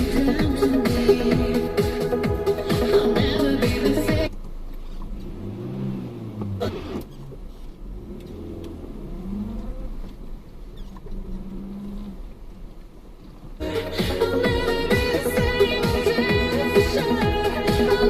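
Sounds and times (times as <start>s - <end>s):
music: 0.0s - 4.3s, 13.6s - 18.0s
car engine running: 0.0s - 18.0s.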